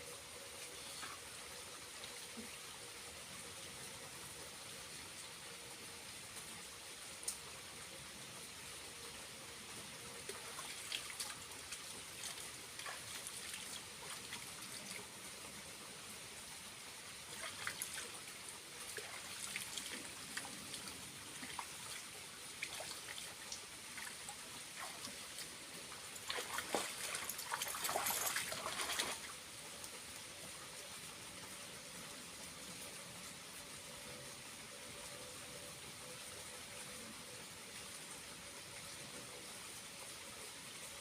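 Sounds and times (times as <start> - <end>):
small waterfall splashing: 0.0 - 31.6.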